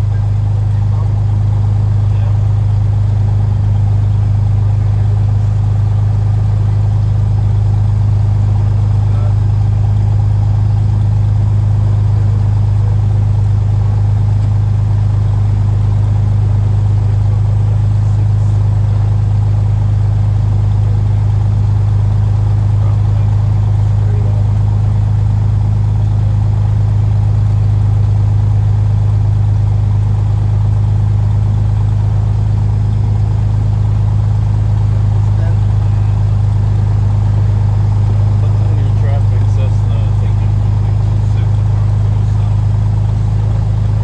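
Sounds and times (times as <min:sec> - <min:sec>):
propeller plane engine drone: 0:00.0 - 0:44.0.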